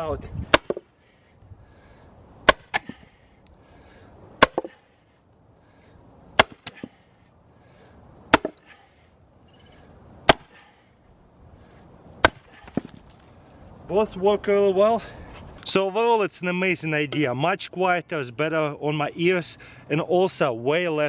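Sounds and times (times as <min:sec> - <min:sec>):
sledgehammer striking steel wedge: 0:00.5 - 0:00.9, 0:02.4 - 0:03.1, 0:04.4 - 0:04.8, 0:06.4 - 0:07.0, 0:08.3 - 0:08.8, 0:10.2 - 0:10.7, 0:12.2 - 0:13.0.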